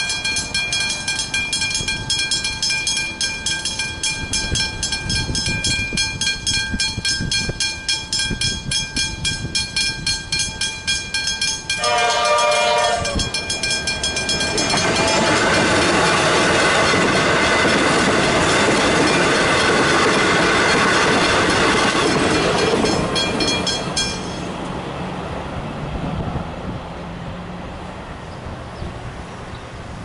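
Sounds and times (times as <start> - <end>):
level crossing bells ringing: 0.0 - 17.4, 18.5 - 24.6
train wheels clattering on rails: 0.0 - 25.0
road traffic noise: 0.0 - 30.0.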